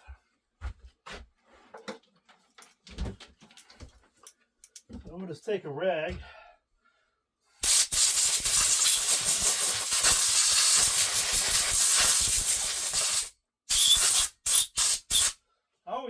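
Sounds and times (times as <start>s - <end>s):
compressed air hissing: 7.6s - 15.4s.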